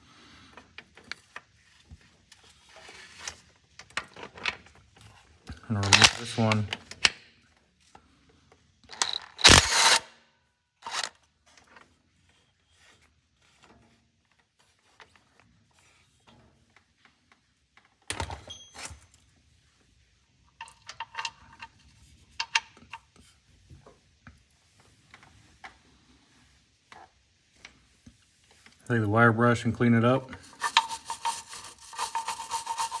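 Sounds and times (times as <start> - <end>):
impact driver hammering: 9.0 - 10.0.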